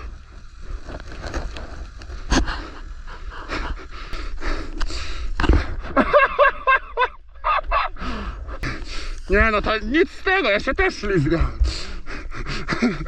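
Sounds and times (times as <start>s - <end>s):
person breathing hard: 2.3s - 6.0s, 8.0s - 9.3s, 11.6s - 13.0s.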